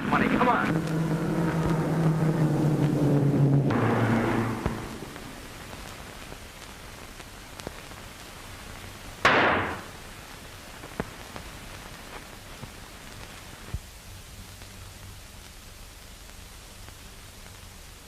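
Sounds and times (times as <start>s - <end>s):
sudden loud noise burst: 0.0s - 6.4s, 9.2s - 10.0s
film soundtrack hiss and crackle: 0.0s - 18.0s.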